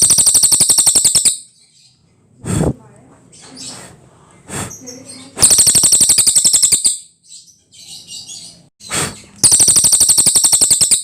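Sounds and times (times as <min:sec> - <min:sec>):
songbird fast high trill: 0:00.0 - 0:01.5, 0:05.4 - 0:07.1, 0:08.9 - 0:11.0
faint bird twittering: 0:03.3 - 0:11.0.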